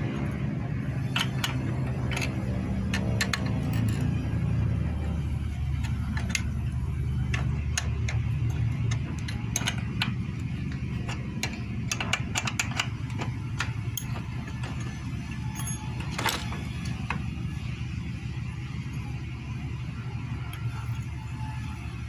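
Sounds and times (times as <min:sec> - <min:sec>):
low steady hum: 0:00.0 - 0:22.0
metallic clicks of hand tools: 0:01.1 - 0:04.3, 0:05.8 - 0:14.9.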